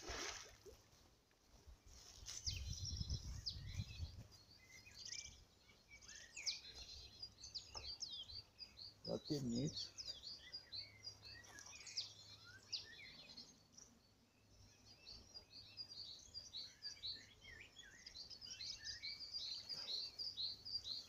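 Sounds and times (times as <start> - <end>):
small birds chirping: 1.8 - 21.0.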